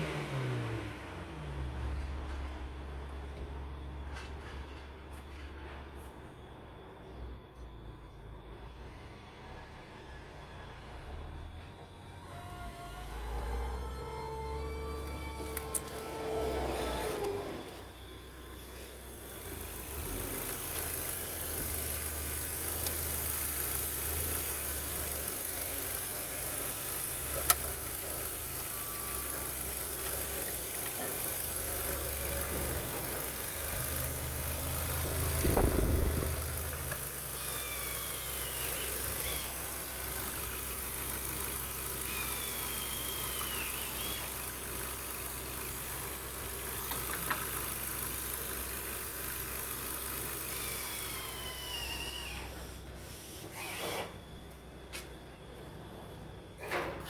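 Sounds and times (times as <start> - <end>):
car engine idling: 11.5 - 51.6.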